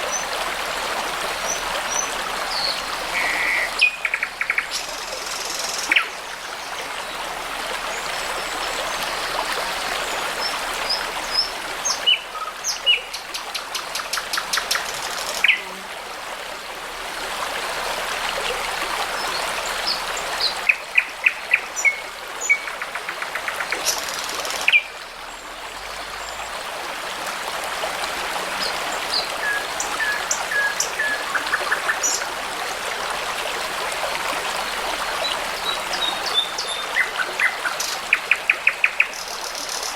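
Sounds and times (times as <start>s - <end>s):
brook babbling: 0.0s - 39.9s
songbirds singing: 35.2s - 39.9s.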